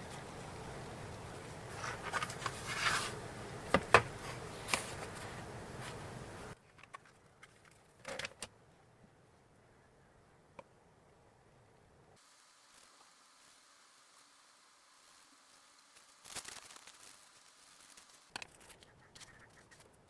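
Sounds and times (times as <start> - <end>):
steady background hiss: 0.0 - 6.7, 8.2 - 18.4
paper rustling: 1.3 - 6.1.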